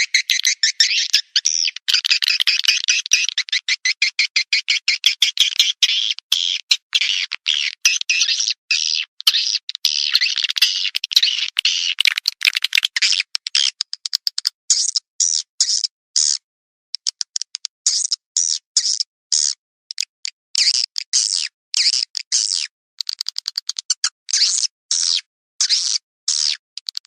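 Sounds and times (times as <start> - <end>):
swiftlet clicks: 12.0 - 13.0.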